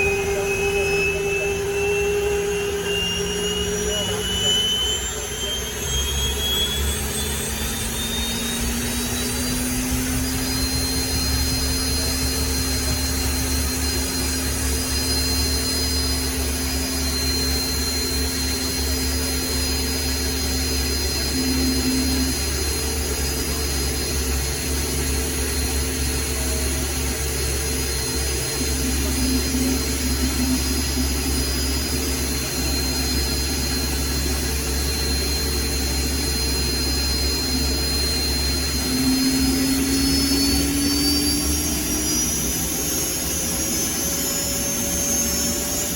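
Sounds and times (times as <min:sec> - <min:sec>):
helicopter turbine whine: 0:00.0 - 0:45.9
steady low drone: 0:00.0 - 0:45.9.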